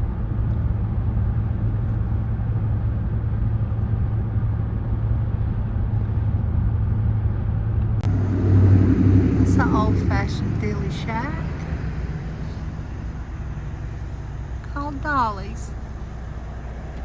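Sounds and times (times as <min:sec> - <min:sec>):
car interior rumble: 0:07.8 - 0:17.0.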